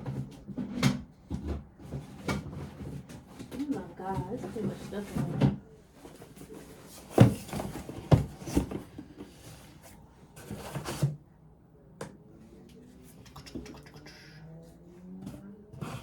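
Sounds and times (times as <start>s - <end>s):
household items knocking and clattering: 0.0s - 9.4s.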